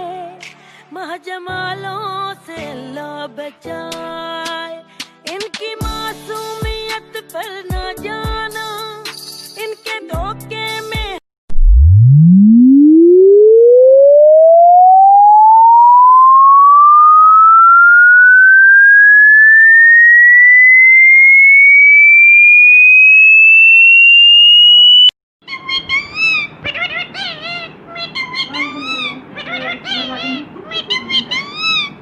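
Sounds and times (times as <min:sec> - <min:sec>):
rising electronic tone sweep: 0:11.5 - 0:25.1
parrot squawks: 0:25.4 - 0:32.0.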